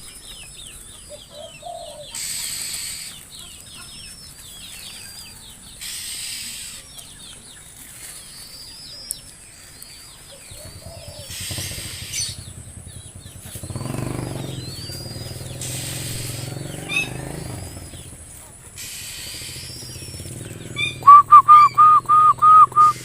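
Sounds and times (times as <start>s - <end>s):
birds chirping: 0.0s - 23.0s
motor engine hum: 10.4s - 23.0s.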